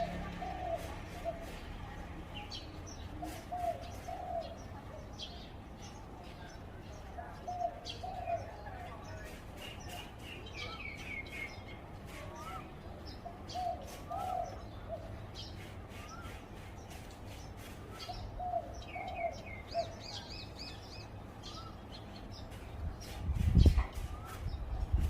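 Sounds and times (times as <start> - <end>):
dove cooing: 0.0 - 1.8, 3.2 - 4.6, 18.1 - 20.2
small birds chirping and trilling: 0.0 - 25.0.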